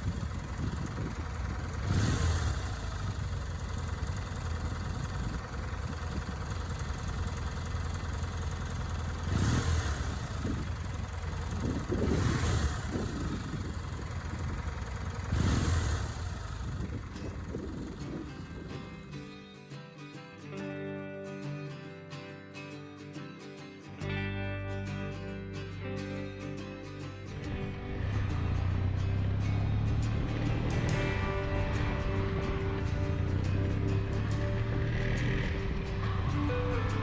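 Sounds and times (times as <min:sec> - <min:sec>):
motorcycle engine idling: 0:00.0 - 0:19.3, 0:27.3 - 0:37.0.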